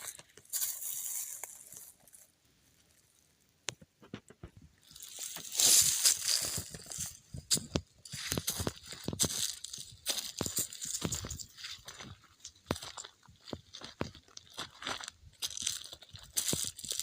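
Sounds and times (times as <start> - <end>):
leaf litter rustling and crunching: 0.0 - 2.3, 4.8 - 7.2.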